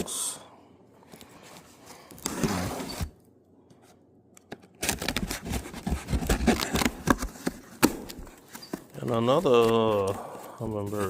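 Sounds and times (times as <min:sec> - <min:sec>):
cardboard box scraping: 0:02.2 - 0:03.2.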